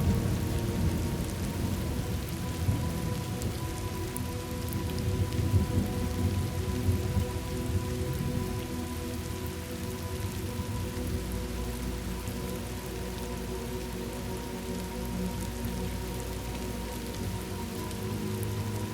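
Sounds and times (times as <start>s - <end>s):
rolling thunder rumble: 0.0s - 3.9s, 4.8s - 8.6s
faint steady tones: 0.0s - 18.9s
steady rain: 0.0s - 18.9s.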